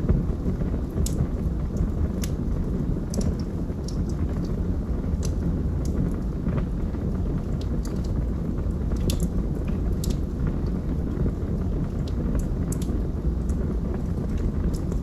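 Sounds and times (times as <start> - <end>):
fire crackling in a fireplace: 0.0 - 15.0
steady low rumble: 0.0 - 15.0
sharp pops of fire: 0.9 - 2.4.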